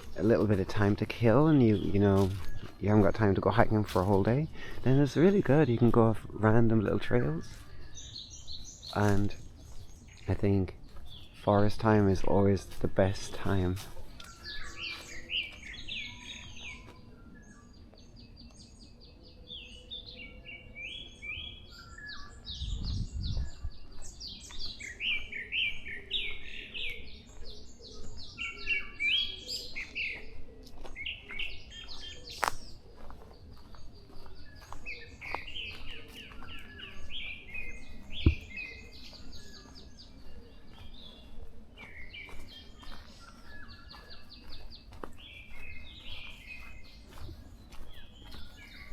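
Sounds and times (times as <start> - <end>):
forest birds chirping and singing: 0.0 - 48.9
low thump: 38.2 - 38.4.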